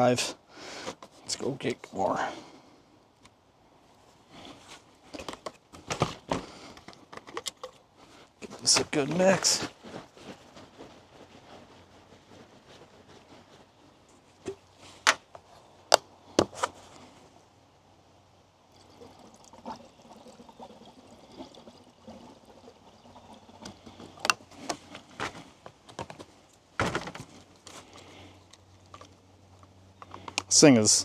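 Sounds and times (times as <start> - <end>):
fuel pouring into a tank: 18.6 - 25.2.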